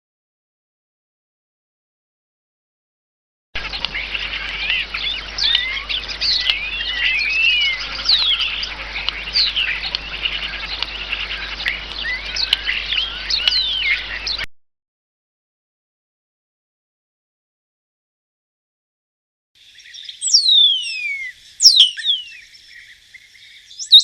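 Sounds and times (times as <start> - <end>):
songbird singing: 3.6 - 14.5, 19.6 - 24.0.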